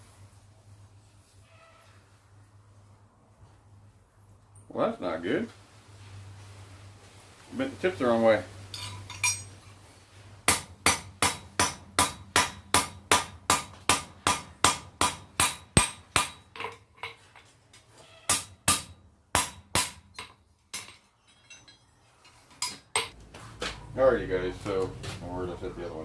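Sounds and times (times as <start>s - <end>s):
hammer striking metal on anvil: 10.5s - 17.2s, 18.3s - 21.8s, 22.6s - 23.2s.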